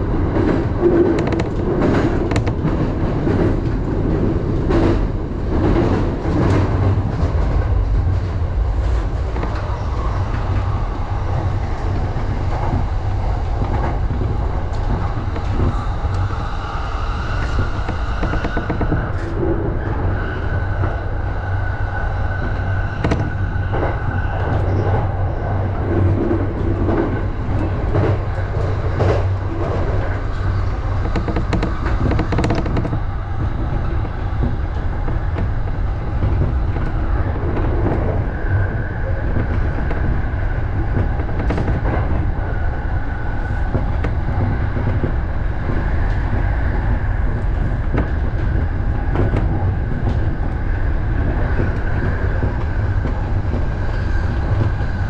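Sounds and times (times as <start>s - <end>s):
train wheels rumbling on rail: 0.0s - 55.0s
wheels clicking over rail joints: 17.2s - 19.4s, 26.1s - 38.2s.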